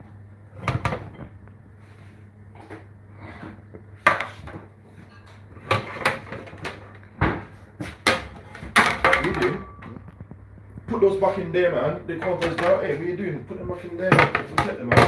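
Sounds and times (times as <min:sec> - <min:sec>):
low steady hum: 0:00.0 - 0:15.0
dishes and cupboards knocking: 0:05.6 - 0:10.0, 0:14.0 - 0:15.0.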